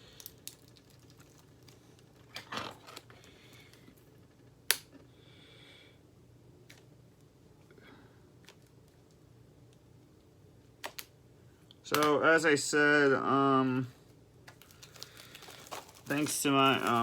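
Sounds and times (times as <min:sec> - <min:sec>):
sharp plastic click: 0:11.9 - 0:12.1
rustling and handling: 0:14.0 - 0:17.0.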